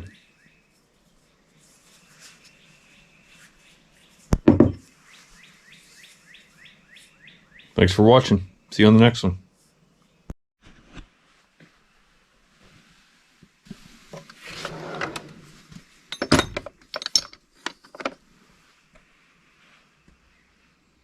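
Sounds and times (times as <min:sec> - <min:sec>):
rubbing and rustling: 0:00.7 - 0:07.2, 0:10.6 - 0:20.8.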